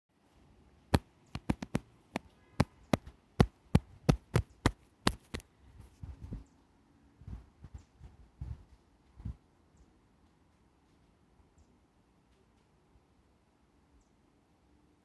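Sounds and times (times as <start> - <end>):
sharp clicks or knocks: 1.4 - 5.4.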